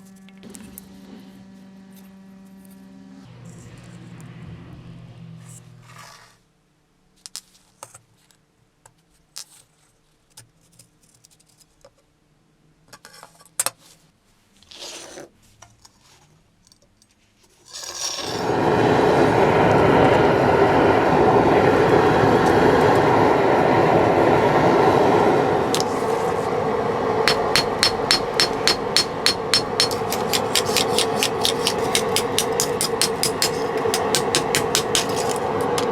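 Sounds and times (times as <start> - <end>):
small clicks and scrapes: 7.2 - 12.1, 12.9 - 18.4, 29.5 - 35.9
rushing power tool: 27.2 - 35.9.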